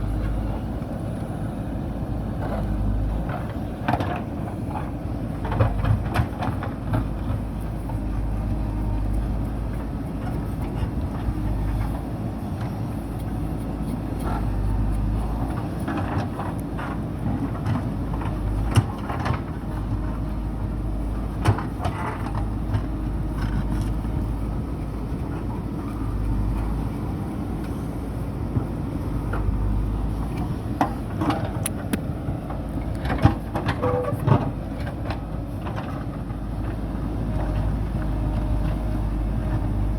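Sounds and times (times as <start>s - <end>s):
diesel engine rumbling: 0.0s - 39.9s
machine knocks and clanks: 30.8s - 36.8s.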